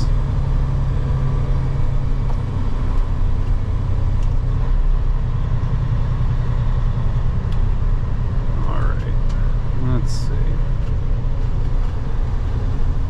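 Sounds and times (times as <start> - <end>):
diesel truck engine running: 0.0 - 13.0
road noise: 0.0 - 13.0.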